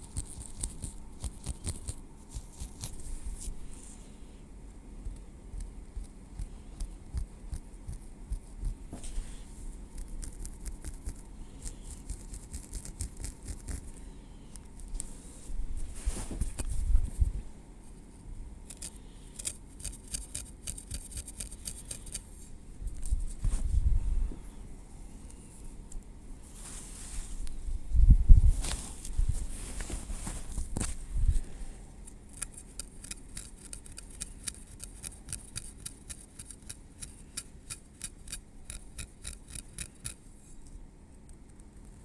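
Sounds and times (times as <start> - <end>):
tweezers clicking through hair: 0.0 - 3.0, 10.0 - 13.8, 18.7 - 23.2, 32.1 - 40.2.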